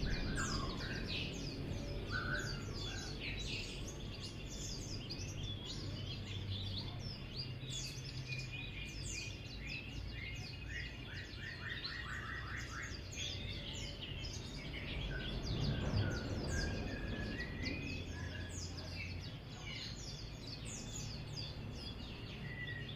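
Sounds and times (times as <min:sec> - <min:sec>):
steady low rumble: 0:00.0 - 0:05.6, 0:13.4 - 0:22.1
bird twittering song: 0:00.0 - 0:22.9.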